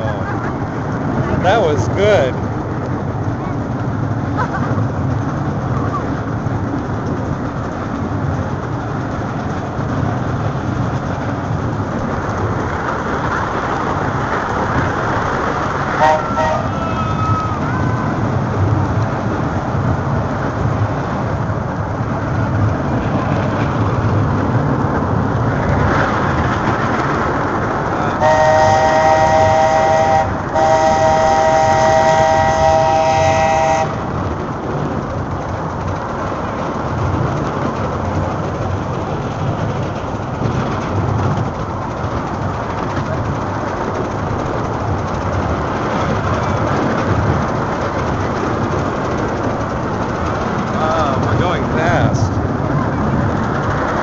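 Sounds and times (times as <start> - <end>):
train rolling and rail clatter: 0.0 - 54.0
steam train whistle: 16.0 - 16.8, 28.2 - 34.0.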